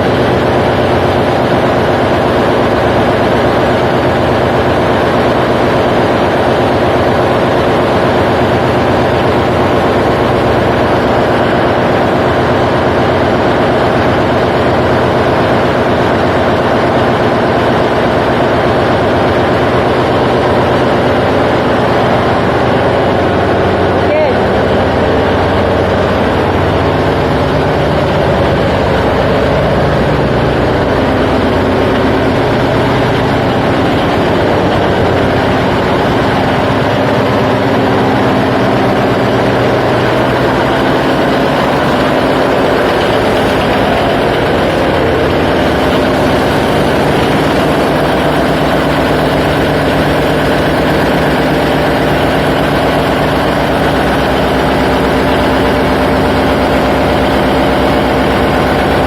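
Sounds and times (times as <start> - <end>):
ship diesel engine drone: 0.0 - 59.0.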